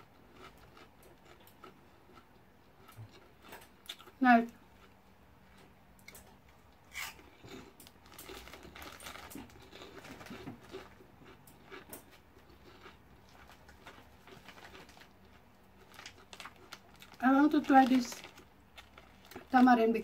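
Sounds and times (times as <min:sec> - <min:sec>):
crispy snack chewing: 0:00.0 - 0:20.0
plastic bag crinkling: 0:07.9 - 0:11.0, 0:13.3 - 0:20.0.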